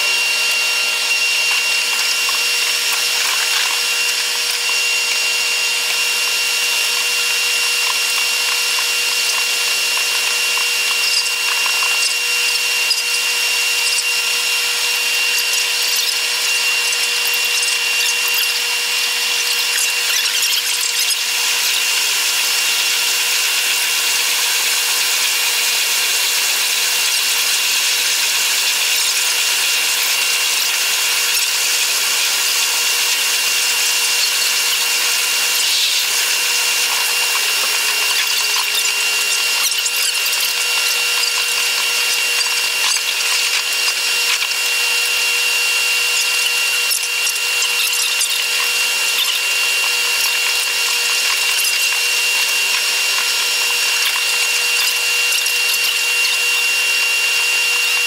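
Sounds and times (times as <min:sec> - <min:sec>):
electric train high whine: 0:00.0 - 0:19.4.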